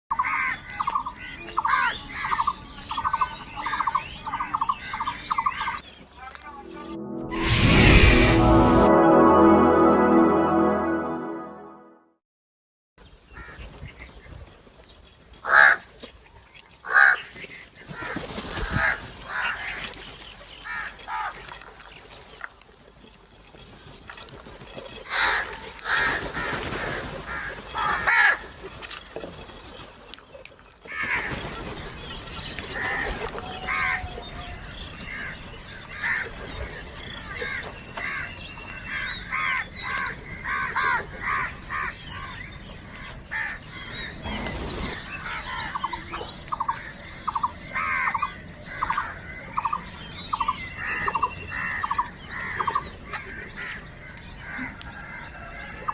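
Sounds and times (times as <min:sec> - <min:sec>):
crows cawing: 0:00.2 - 0:01.0, 0:15.4 - 0:15.9, 0:16.8 - 0:17.2, 0:18.0 - 0:19.8, 0:25.1 - 0:28.5, 0:30.9 - 0:31.3, 0:32.8 - 0:35.3, 0:37.4 - 0:42.4, 0:43.0 - 0:43.9, 0:46.6 - 0:49.4, 0:51.5 - 0:55.8.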